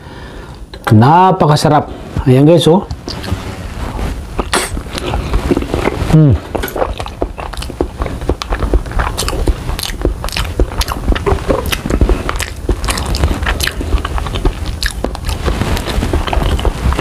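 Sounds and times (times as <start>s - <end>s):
chewing with crunches: 4.4s - 17.0s.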